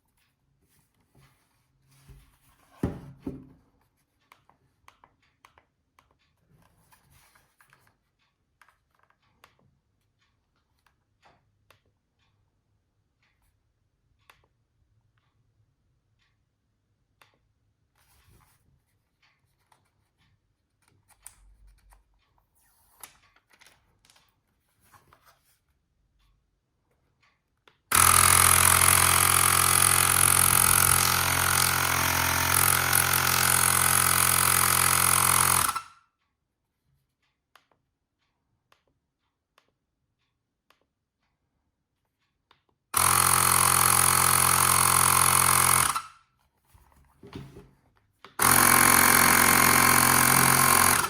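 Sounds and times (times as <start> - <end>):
air compressor drone: 48.4 - 51.0.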